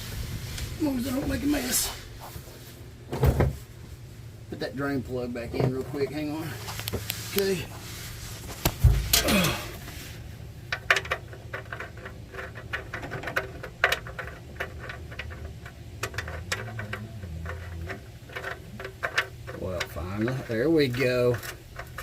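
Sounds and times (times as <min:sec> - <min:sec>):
drain plug clicking and tapping: 0:10.7 - 0:22.0.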